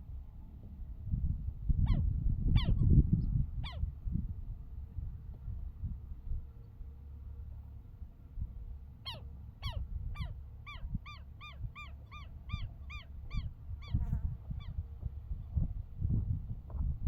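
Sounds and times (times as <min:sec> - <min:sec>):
bird honking calls: 0:09.0 - 0:14.0.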